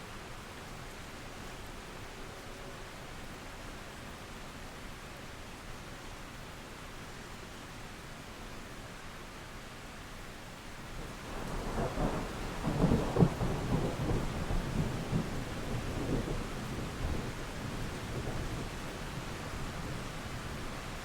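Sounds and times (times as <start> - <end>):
steady rain: 0.0 - 21.0
thunder rumbling: 11.3 - 20.0.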